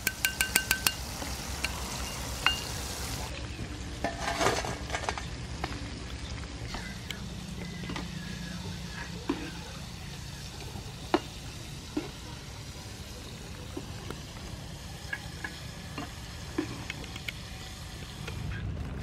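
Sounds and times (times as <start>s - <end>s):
metal spatula clinking on pan: 0.0s - 1.0s
squid frying in oil: 0.0s - 19.0s.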